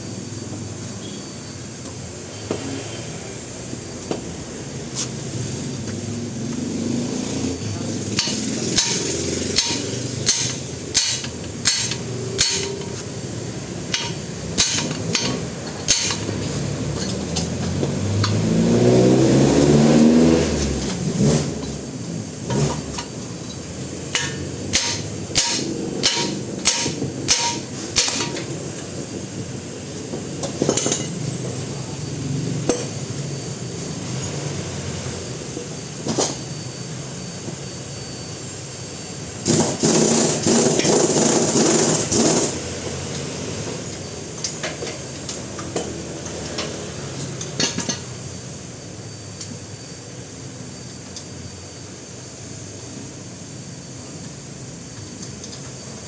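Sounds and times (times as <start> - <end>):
engine revving: 5.0 - 28.3, 39.4 - 43.8.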